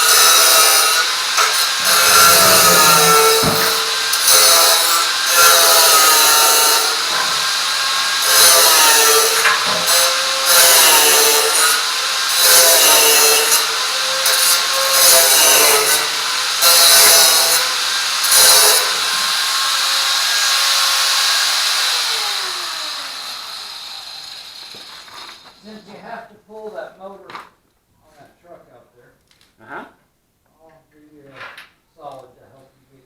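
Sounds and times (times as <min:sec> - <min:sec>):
electric power tool cutting: 0:00.0 - 0:25.6.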